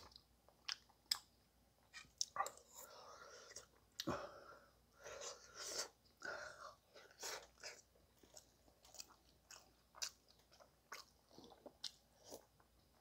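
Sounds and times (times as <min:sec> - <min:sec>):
man chewing food: 0:05.0 - 0:13.0.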